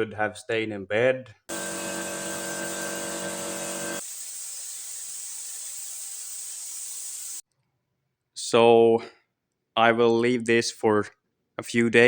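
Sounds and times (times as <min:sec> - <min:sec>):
motor hum: 0:01.5 - 0:04.0.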